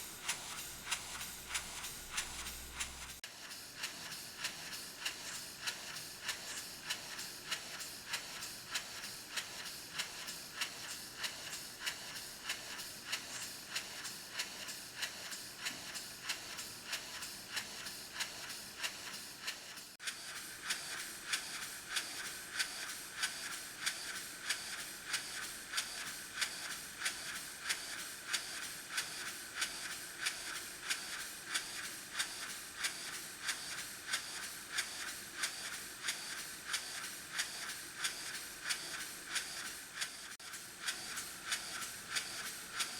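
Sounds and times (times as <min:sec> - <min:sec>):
model engine exhaust puffs: 0:00.0 - 0:42.9.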